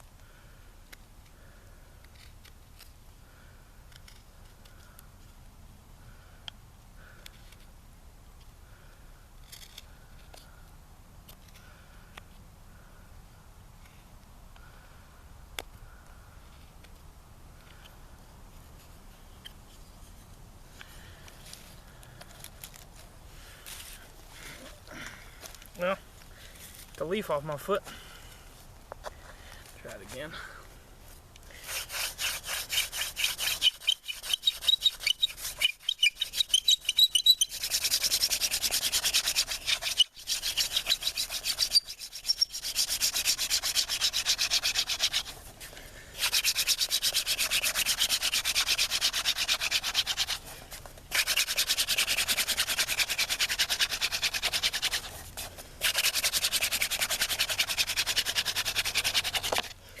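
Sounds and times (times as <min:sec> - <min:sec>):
hand drill spindle grinding: 0:31.6 - 0:45.4, 0:46.2 - 0:50.5, 0:51.1 - 0:59.8
wooden spindle squeaking: 0:31.6 - 0:45.4, 0:46.2 - 0:50.5, 0:51.1 - 0:59.8.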